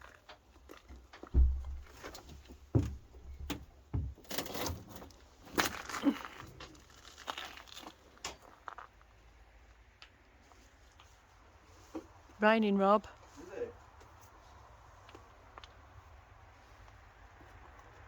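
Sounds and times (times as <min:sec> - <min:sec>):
knocks and thumps: 0:01.2 - 0:04.9.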